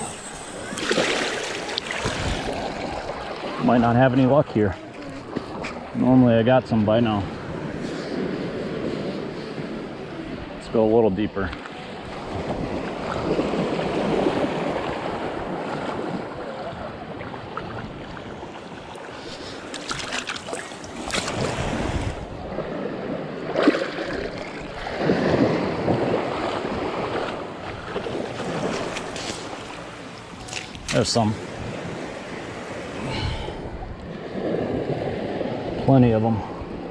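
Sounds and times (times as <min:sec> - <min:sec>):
water splashing close by: 0:00.0 - 0:06.0, 0:17.3 - 0:22.2, 0:23.4 - 0:32.1
ocean surf washing: 0:00.0 - 0:36.9
wind buffeting microphone: 0:20.9 - 0:23.6.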